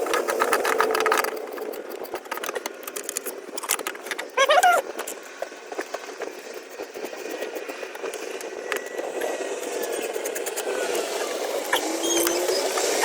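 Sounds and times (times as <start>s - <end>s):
hand tools clicking: 0.0s - 9.0s
steady vehicle noise: 0.0s - 13.0s.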